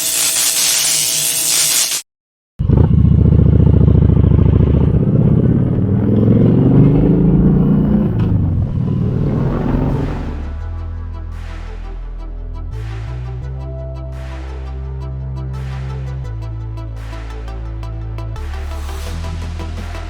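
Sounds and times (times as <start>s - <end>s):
motorcycle engine revving: 2.6s - 10.6s
loud rushing noise: 5.0s - 10.7s.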